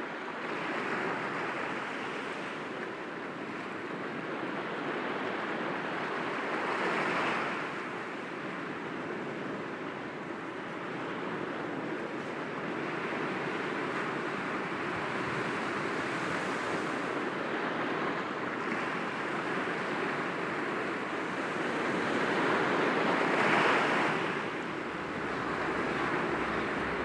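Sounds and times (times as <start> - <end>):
waves breaking against rocks: 21.0 - 27.0.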